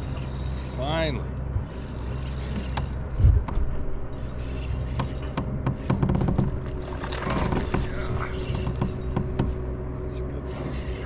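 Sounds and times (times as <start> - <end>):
low rumble: 0.0 - 11.0
fishing reel clicking: 1.7 - 3.0, 4.1 - 5.3.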